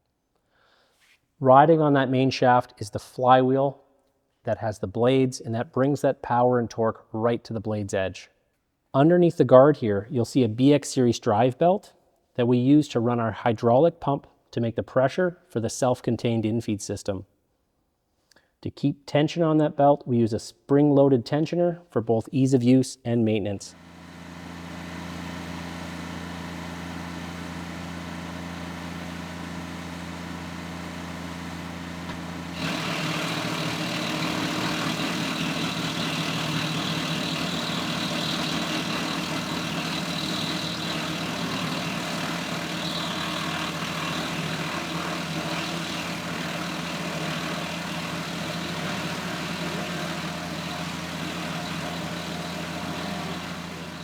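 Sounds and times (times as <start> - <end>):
tractor engine running: 23.8 - 54.0
wood chipper rushing noise: 23.8 - 54.0.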